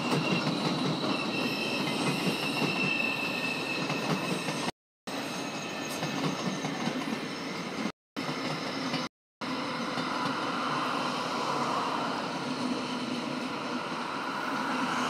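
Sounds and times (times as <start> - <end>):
high wheel squeal: 0.0 - 9.1
train wheels rumbling on rail: 0.0 - 15.0.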